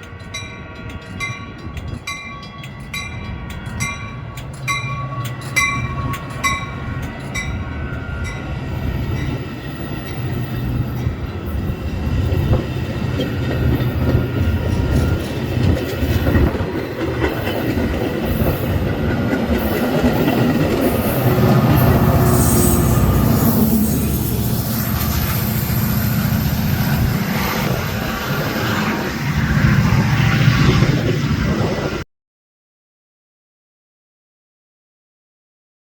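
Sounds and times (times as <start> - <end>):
train rumbling past: 0.0 - 32.0
bell ringing: 0.3 - 10.5
wheels clattering over rail joints: 9.1 - 22.2.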